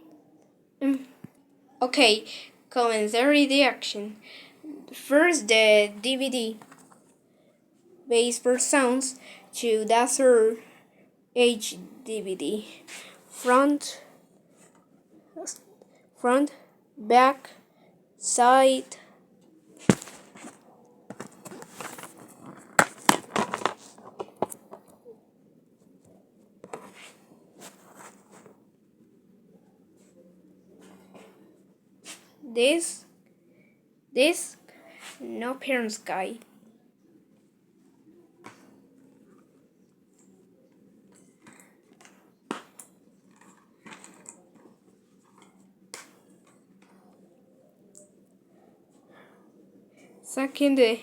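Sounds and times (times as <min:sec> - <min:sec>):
case handling rustling: 0:19.9 - 0:24.9
plastic case clicks: 0:22.7 - 0:24.8.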